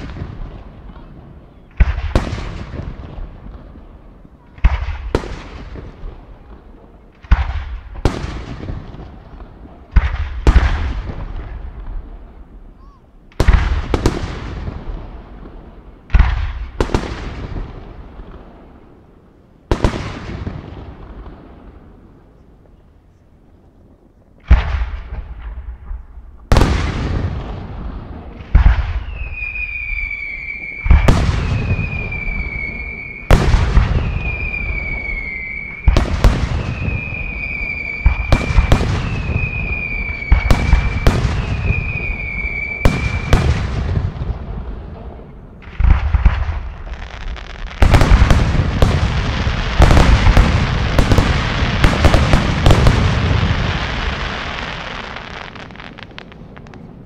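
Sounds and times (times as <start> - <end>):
high steady firework whistle: 28.6 - 43.7, 45.8 - 56.8
firework shells bursting: 45.7 - 54.2.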